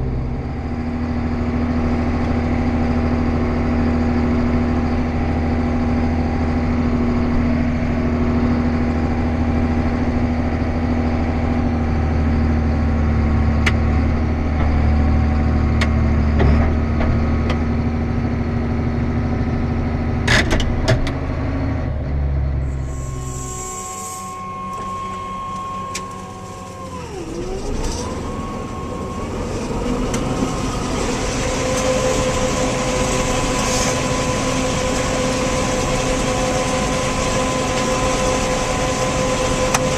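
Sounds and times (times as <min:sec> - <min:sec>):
vehicle engine running: 0:00.0 - 0:39.9
whining tone: 0:22.0 - 0:39.9.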